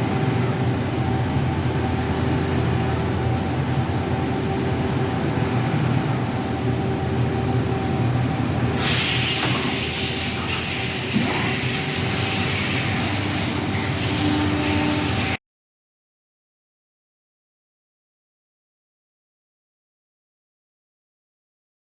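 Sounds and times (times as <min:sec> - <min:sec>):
machine hum with held tones: 0:00.0 - 0:15.4
high hiss: 0:08.8 - 0:15.4.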